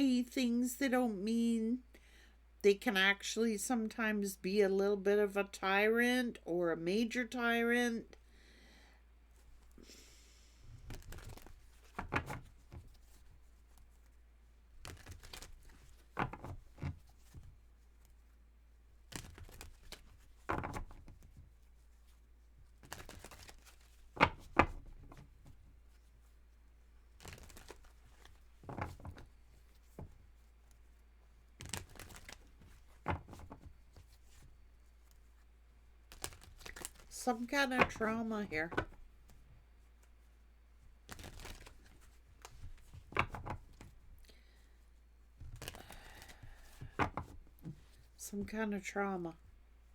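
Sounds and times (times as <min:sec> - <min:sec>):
cards being shuffled: 0:10.8 - 0:18.3, 0:19.0 - 0:26.4, 0:27.1 - 0:40.2, 0:41.0 - 0:44.2, 0:45.4 - 0:48.5.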